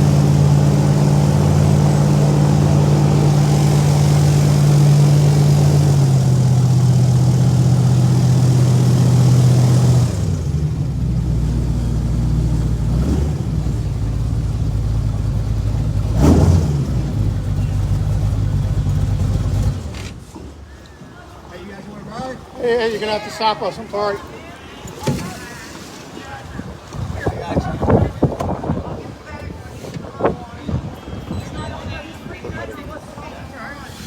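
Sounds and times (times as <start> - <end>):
boat motor running: 0.0 - 20.0.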